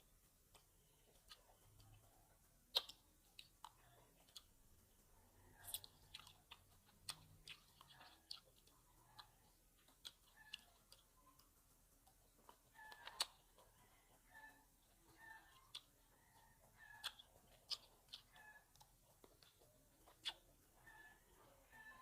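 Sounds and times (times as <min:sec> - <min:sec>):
chewing grapes: 0:00.0 - 0:22.0
wet mouth clicks: 0:02.7 - 0:04.5, 0:05.6 - 0:13.6, 0:17.0 - 0:20.5.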